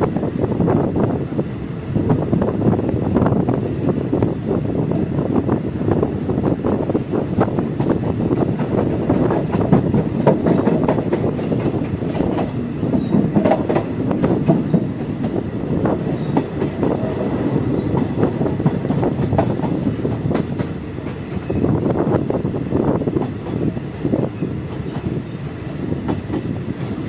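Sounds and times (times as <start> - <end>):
train coach rumbling: 0.0 - 27.0
wheels clicking over rail joints: 7.5 - 21.7.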